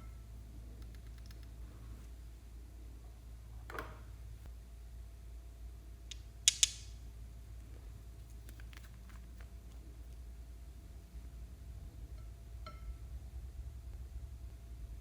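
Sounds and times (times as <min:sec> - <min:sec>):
low steady hum: 0:00.0 - 0:15.0
sharp clicks: 0:06.1 - 0:06.9.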